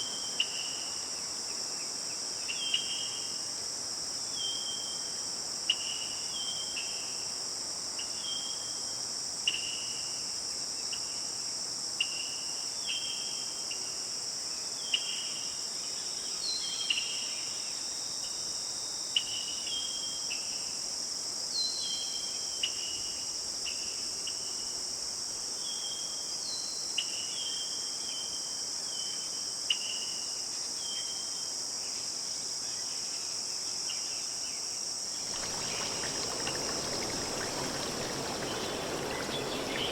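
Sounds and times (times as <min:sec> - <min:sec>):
insects chirring: 0:35.1 - 0:39.9.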